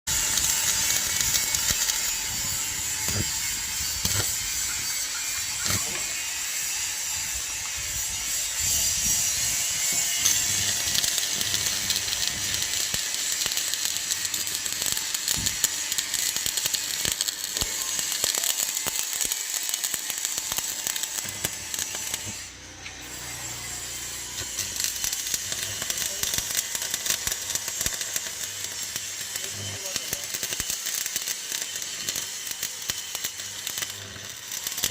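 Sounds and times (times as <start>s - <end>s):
welding arc crackling: 0.1s - 34.9s.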